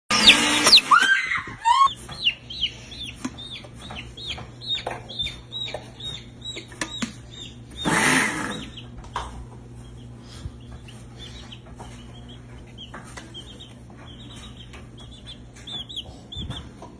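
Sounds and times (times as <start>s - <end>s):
baby chick peeping: 0.1s - 16.9s.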